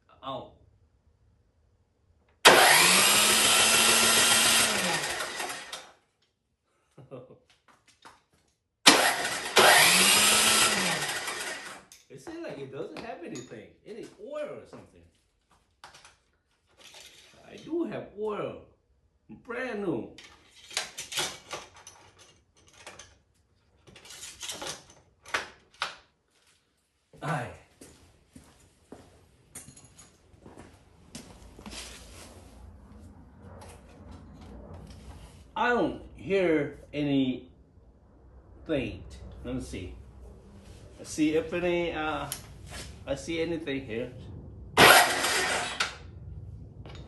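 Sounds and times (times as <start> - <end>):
electric starter cranking engine: 2.4 - 5.9, 8.9 - 11.9, 44.8 - 46.0
snowblower parts scraping and rattling: 3.9 - 5.8, 8.9 - 12.0, 16.6 - 17.7, 20.2 - 25.3, 44.8 - 46.0.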